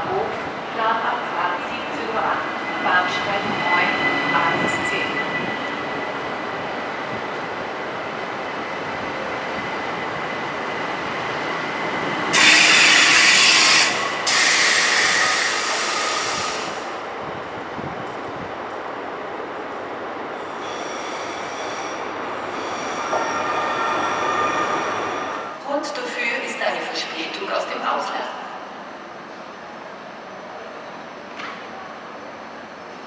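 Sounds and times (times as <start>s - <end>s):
train rumbling: 0.0s - 27.8s
air brakes hissing: 12.3s - 17.0s.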